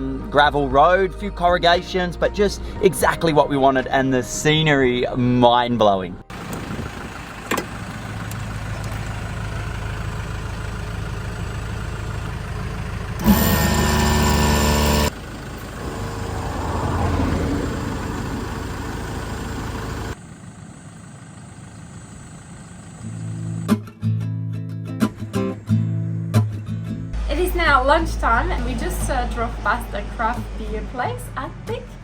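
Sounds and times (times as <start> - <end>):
car engine droning while driving: 6.3 - 23.7.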